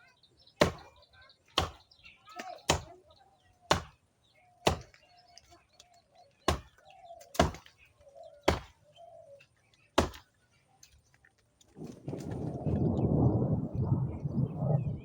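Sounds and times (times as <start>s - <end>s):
blade chopping branch: 0.6s - 1.0s, 1.6s - 3.0s, 3.7s - 4.0s, 4.6s - 5.0s, 6.5s - 7.8s, 8.5s - 8.8s, 10.0s - 10.3s.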